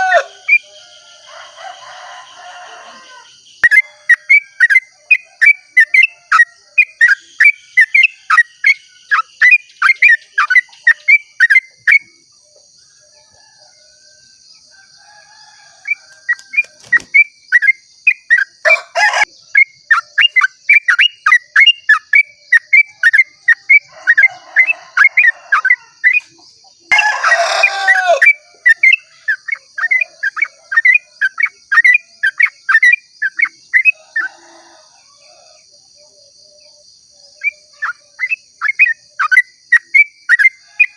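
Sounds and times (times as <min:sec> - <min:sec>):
harsh bird call: 0:00.0 - 0:00.6, 0:26.9 - 0:28.4
high insect-like hiss: 0:00.0 - 0:40.9.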